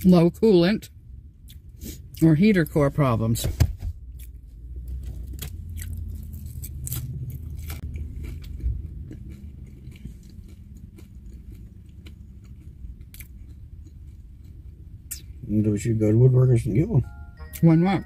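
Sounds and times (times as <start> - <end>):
food crunching while chewing: 4.2 - 15.4.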